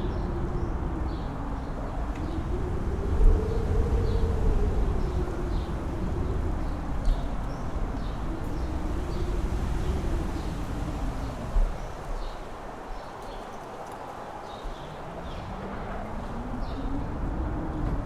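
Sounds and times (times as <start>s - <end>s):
howling wind: 0.0s - 18.0s
strong wind buffeting microphone: 0.0s - 18.0s.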